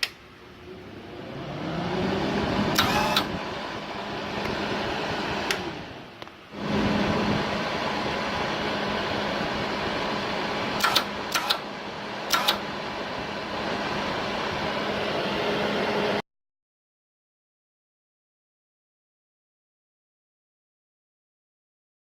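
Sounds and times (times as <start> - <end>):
welder wire-feed motor humming: 0.7 - 16.2
sharp clicks: 10.8 - 11.6, 12.3 - 12.6.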